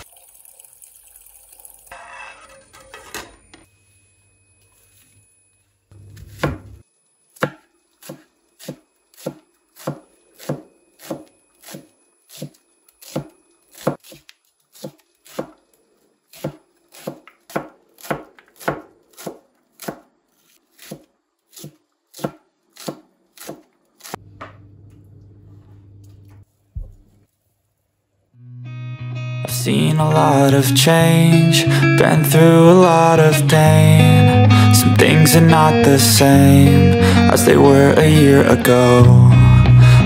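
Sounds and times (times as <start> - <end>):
knife chopping on cutting board: 6.0 - 6.8, 7.4 - 15.5, 16.4 - 20.1, 20.7 - 24.6.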